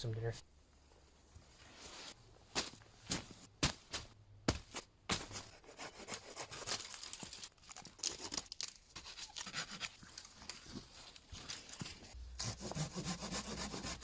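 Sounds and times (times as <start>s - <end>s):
branches cracking: 6.7s - 9.5s
hand saw rasping through wood: 12.4s - 14.0s.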